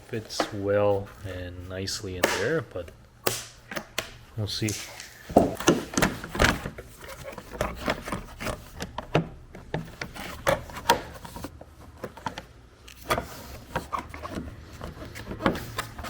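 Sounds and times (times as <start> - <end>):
plastic trim clicking and scraping: 2.2 - 16.0.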